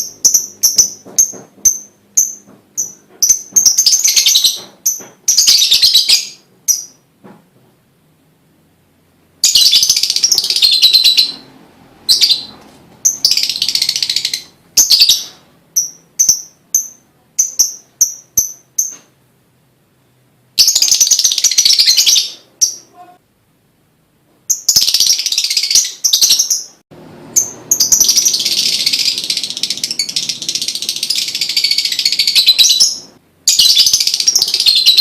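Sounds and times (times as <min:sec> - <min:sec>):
lovebird chattering: 0:09.4 - 0:11.5, 0:12.1 - 0:19.0, 0:24.5 - 0:35.0.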